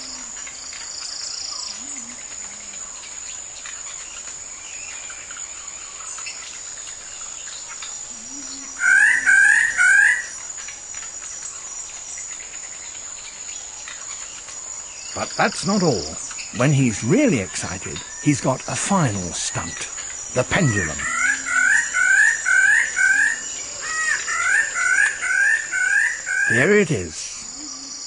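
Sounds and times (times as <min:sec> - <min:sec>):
insects chirring: 0:00.0 - 0:28.0
loud quick bird calls: 0:15.1 - 0:27.9.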